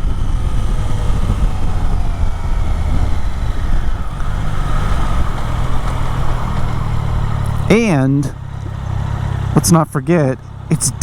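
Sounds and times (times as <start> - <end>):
wind noise: 0.0 - 7.7
motorcycle engine rumble: 0.0 - 11.0.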